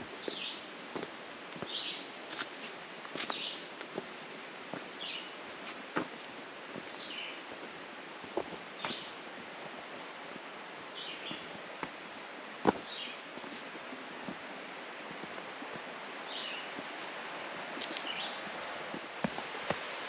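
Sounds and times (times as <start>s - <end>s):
wild birds chirping: 0.0s - 2.5s, 4.6s - 5.4s, 6.2s - 8.0s, 8.7s - 9.2s, 10.3s - 13.4s, 14.1s - 15.0s, 15.7s - 16.8s, 17.6s - 18.5s.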